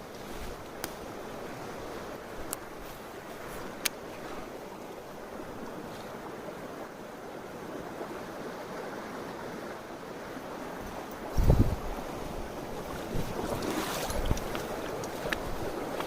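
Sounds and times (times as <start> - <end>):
mountain stream rushing: 0.0 - 16.0
wind buffeting microphone: 10.8 - 16.0.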